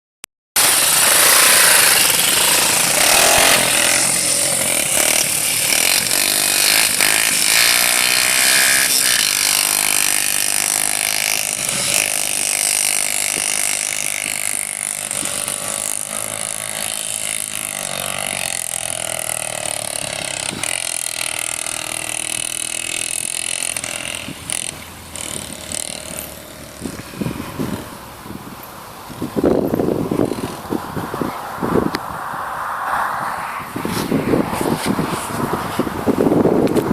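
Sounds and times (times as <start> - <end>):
motocross bike engine revving: 0.6 - 28.1.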